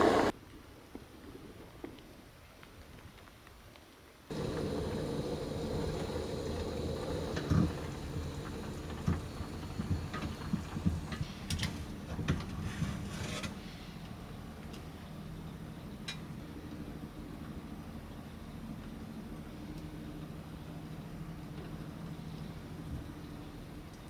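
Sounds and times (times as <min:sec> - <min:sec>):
vehicle engine humming: 0:00.0 - 0:00.3, 0:04.3 - 0:12.2.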